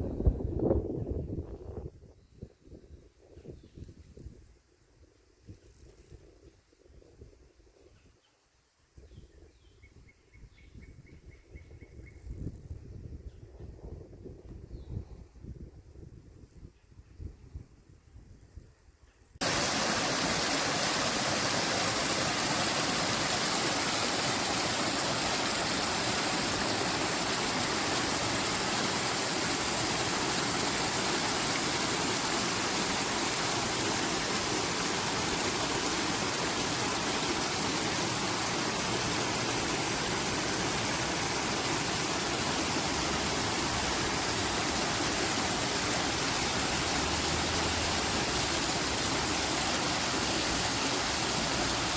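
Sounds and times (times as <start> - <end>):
rushing water: 19.4 - 51.9.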